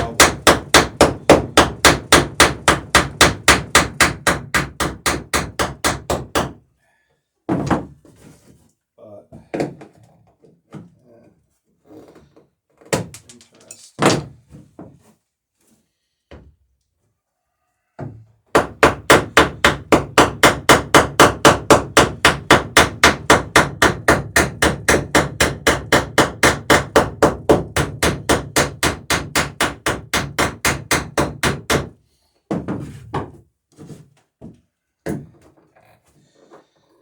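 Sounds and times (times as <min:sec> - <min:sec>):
rapid hand hammering: 0:00.0 - 0:06.6, 0:18.5 - 0:33.3.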